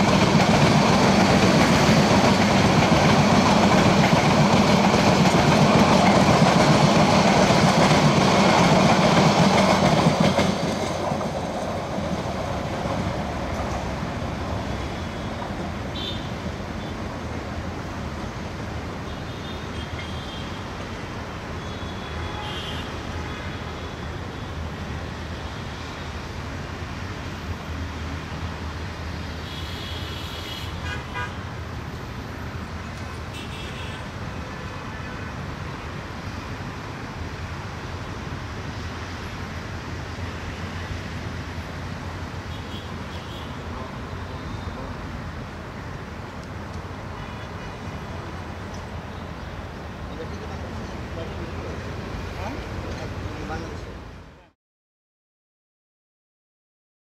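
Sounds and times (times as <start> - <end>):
train rumbling: 0.0 - 19.0, 31.4 - 54.2.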